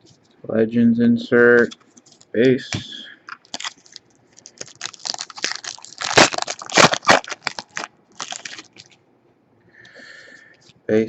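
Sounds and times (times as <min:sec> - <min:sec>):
card pack wrappers crinkling: 0:03.3 - 0:09.0.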